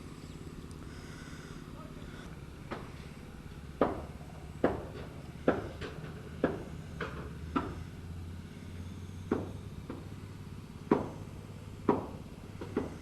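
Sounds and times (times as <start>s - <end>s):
steady low hum: 0.0s - 13.0s
hammer blows on wood: 3.8s - 7.8s, 9.1s - 10.2s, 10.9s - 13.0s.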